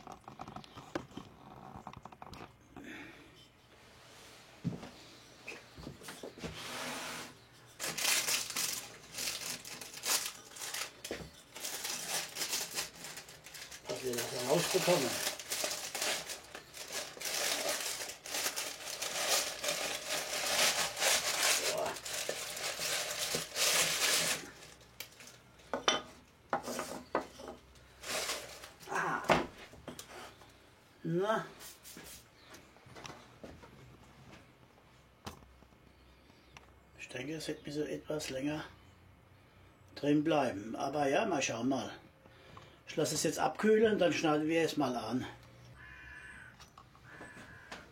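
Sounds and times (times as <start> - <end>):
baking paper crinkling: 7.6 - 25.5, 26.6 - 29.0.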